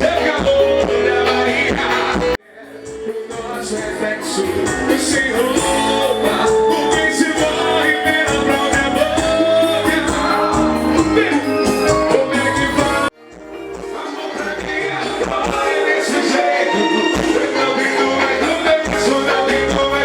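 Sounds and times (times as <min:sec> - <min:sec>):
person singing: 0:00.0 - 0:13.1
live band music: 0:00.0 - 0:20.0.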